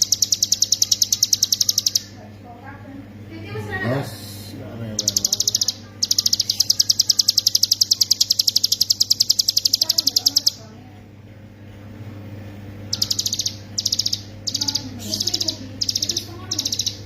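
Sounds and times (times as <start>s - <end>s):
bird singing rapid trill: 0.0s - 2.2s, 5.0s - 10.6s, 12.9s - 17.0s
steady low hum: 0.0s - 17.0s.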